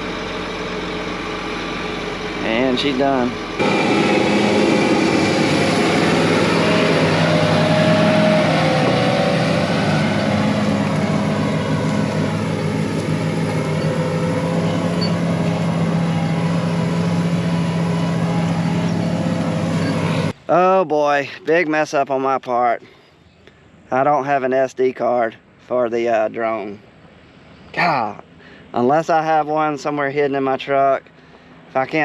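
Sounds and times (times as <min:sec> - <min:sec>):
tractor engine running: 0:00.0 - 0:20.4
faint wavering whine: 0:10.2 - 0:20.4.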